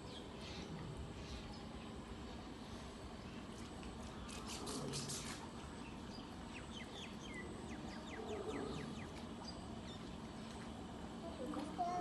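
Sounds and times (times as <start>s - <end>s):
birds chirping: 5.7s - 11.6s.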